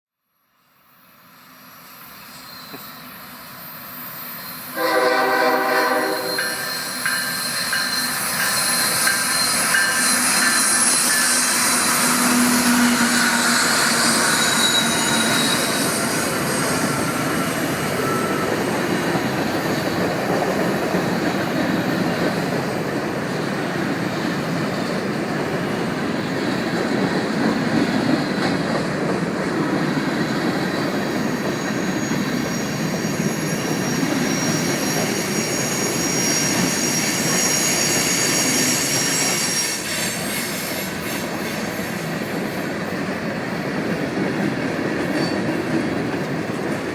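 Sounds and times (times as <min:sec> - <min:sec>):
train rolling on rails: 0:00.8 - 0:46.9
train horn blast: 0:04.8 - 0:06.6
wheel squeal: 0:06.2 - 0:20.1, 0:30.2 - 0:41.2.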